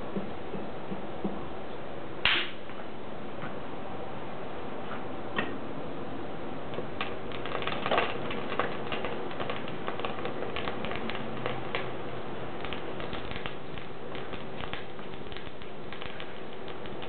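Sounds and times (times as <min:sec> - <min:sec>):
steady rushing hiss: 0:06.1 - 0:17.0
wood fire crackling and popping: 0:06.7 - 0:17.0.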